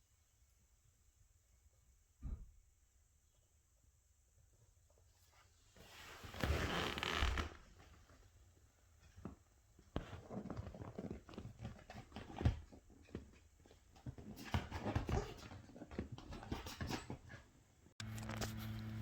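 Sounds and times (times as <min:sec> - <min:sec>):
scratching and rustling: 0:05.2 - 0:19.0
puppy noises: 0:14.0 - 0:17.6.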